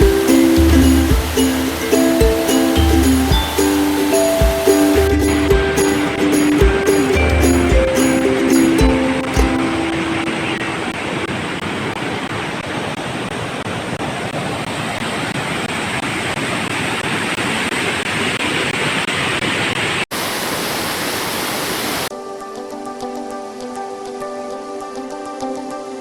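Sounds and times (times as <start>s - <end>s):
waterfall rushing: 0.0s - 16.5s, 20.1s - 22.1s.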